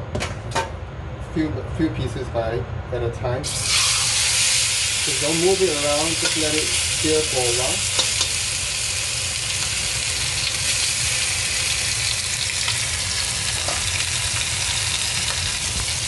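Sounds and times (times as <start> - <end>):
chicken sizzling in hot oil: 3.4 - 16.0.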